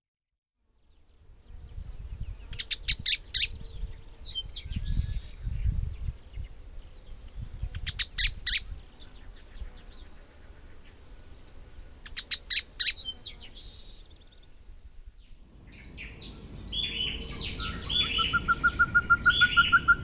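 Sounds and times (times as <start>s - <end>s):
soft bird calls: 15.6s - 20.0s
bird singing high notes: 15.7s - 20.0s.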